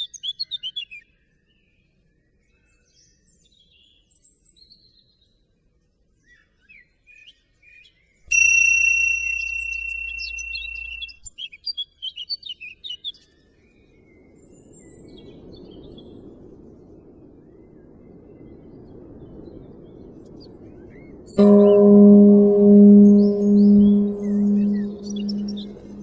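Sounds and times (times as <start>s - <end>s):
high bell-like ringing tone: 8.3s - 11.2s, 21.4s - 26.0s.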